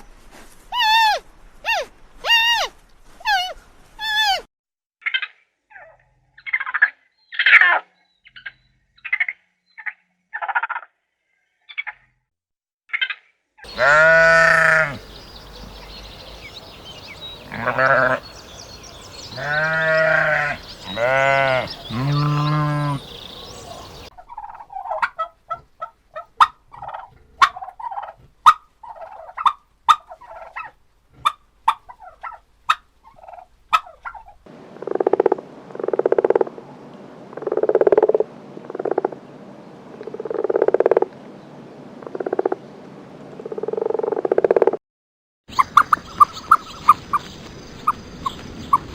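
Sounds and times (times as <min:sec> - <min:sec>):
poultry calling: 0:13.6 - 0:34.4, 0:45.5 - 0:48.9
animal bleating: 0:13.7 - 0:15.0, 0:17.4 - 0:18.3, 0:19.3 - 0:23.1.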